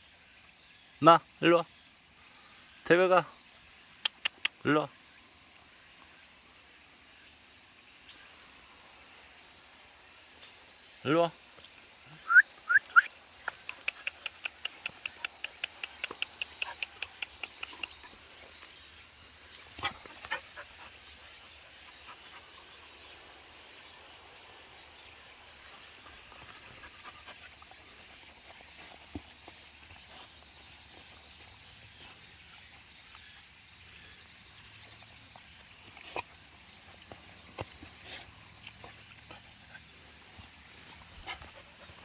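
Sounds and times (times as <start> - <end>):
steady outdoor hiss: 0.0 - 42.0
dogs: 12.3 - 18.7, 19.5 - 23.2, 25.6 - 32.4, 35.8 - 42.0
scattered clicks and taps: 13.4 - 18.0.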